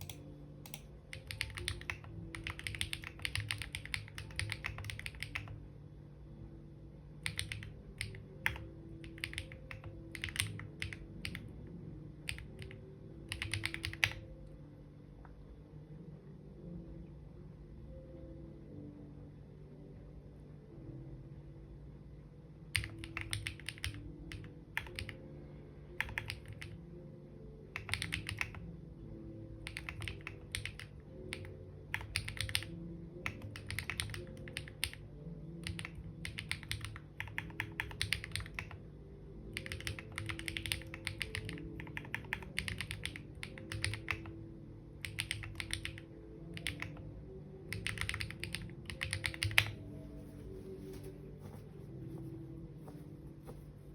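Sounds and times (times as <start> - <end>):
keyboard typing: 0.0 - 5.6, 7.2 - 11.5, 12.2 - 14.3, 22.7 - 25.2, 26.0 - 26.8, 27.7 - 28.6, 29.6 - 38.8, 39.5 - 44.4, 45.0 - 47.1, 47.7 - 50.0.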